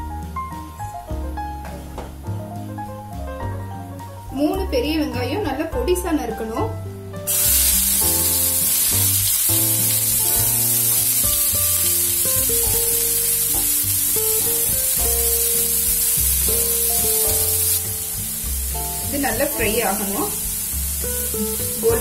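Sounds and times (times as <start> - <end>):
onions sizzling in hot oil: 7.3 - 22.0.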